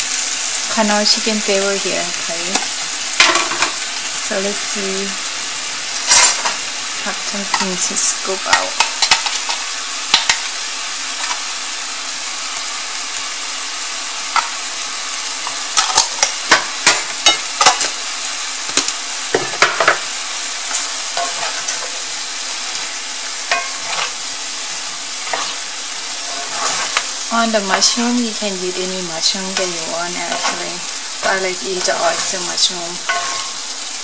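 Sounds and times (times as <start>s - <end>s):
food sizzling in a skillet: 0.0s - 34.0s
wooden spoon knocking a pan: 18.8s - 20.0s.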